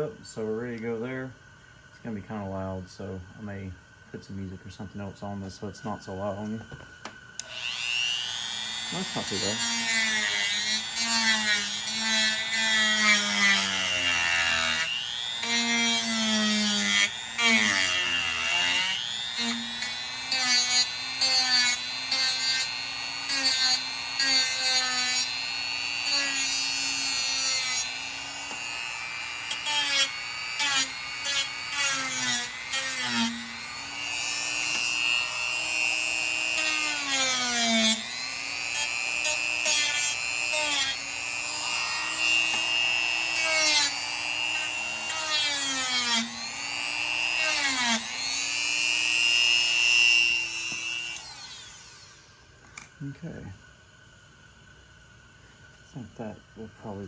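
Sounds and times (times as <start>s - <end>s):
rotary tool grinding plastic: 7.4s - 52.9s.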